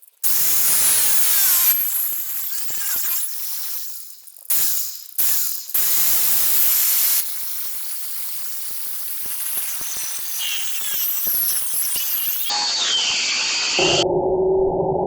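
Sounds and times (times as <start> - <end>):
power tool cutting fiberglass: 0.2 - 14.0.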